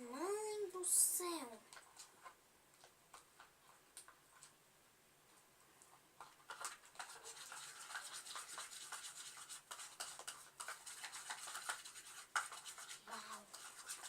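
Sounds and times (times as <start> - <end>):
utensil scraping stirring slime: 1.4 - 4.6, 6.2 - 14.0.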